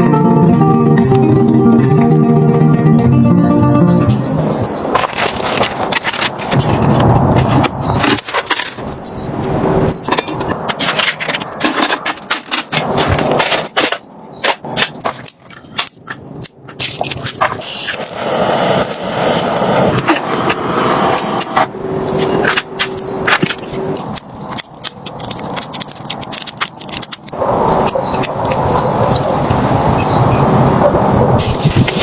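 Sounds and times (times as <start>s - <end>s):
rushing noise: 0.7s - 32.0s
camp gear knocking and scraping: 4.8s - 8.9s, 10.0s - 17.7s, 21.6s - 27.3s.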